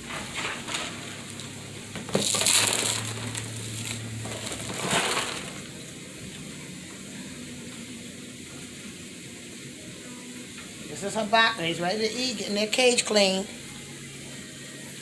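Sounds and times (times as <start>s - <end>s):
rustling inside bird cage: 0.0s - 5.8s.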